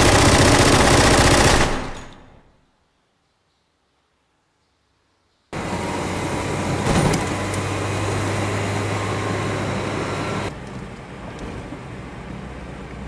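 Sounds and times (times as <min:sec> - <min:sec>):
car engine drone: 0:05.6 - 0:13.0
road and wind noise: 0:05.6 - 0:13.0.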